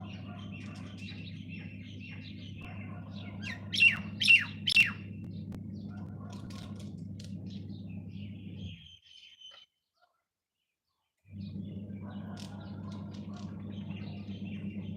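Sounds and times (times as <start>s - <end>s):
steady low hum: 0.0s - 8.9s, 11.3s - 14.9s
sharp falling bird calls: 0.0s - 9.7s
small birds chirping: 0.0s - 14.9s.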